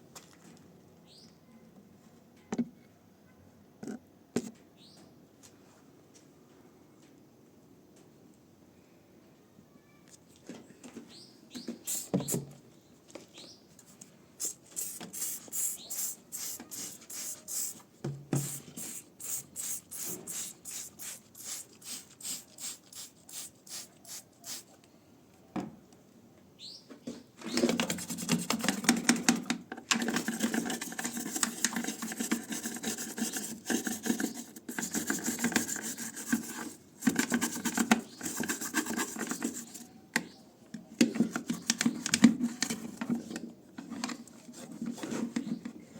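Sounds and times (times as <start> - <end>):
hand scrubbing: 18.4 - 24.7, 30.1 - 39.8.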